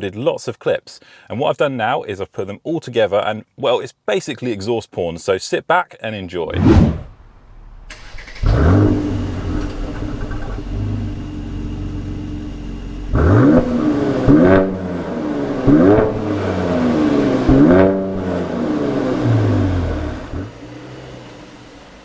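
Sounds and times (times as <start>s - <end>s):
car engine revving: 7.9s - 22.0s.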